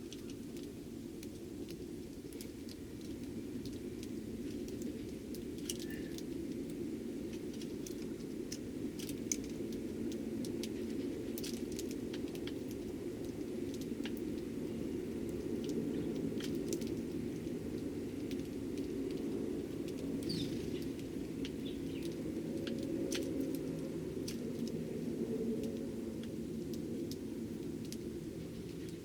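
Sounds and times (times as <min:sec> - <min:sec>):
faint bird chirp: 0:05.8 - 0:06.2, 0:20.2 - 0:20.8.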